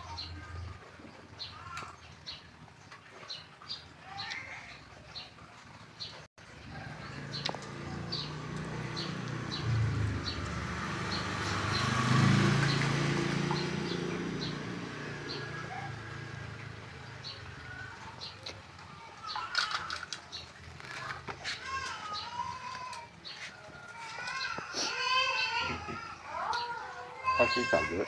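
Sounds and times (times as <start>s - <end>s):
motor vehicle passing: 6.0s - 27.8s.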